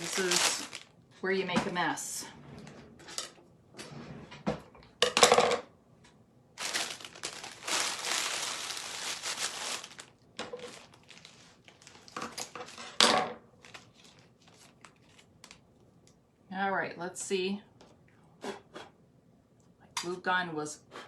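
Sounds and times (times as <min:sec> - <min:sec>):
moss crinkling and rustling: 0:00.0 - 0:00.9, 0:06.6 - 0:12.5, 0:13.6 - 0:15.6.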